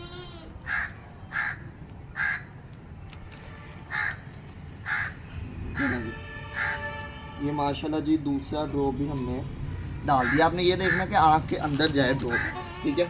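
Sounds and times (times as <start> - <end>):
crow cawing: 0.6 - 1.6, 2.2 - 2.5, 3.9 - 4.2, 4.8 - 5.2, 5.8 - 6.9, 10.2 - 11.1, 12.3 - 12.6.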